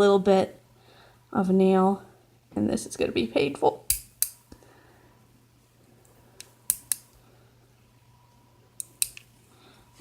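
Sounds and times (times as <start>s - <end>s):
nail clippers snipping: 3.9s - 4.4s, 6.4s - 7.1s, 8.8s - 9.2s.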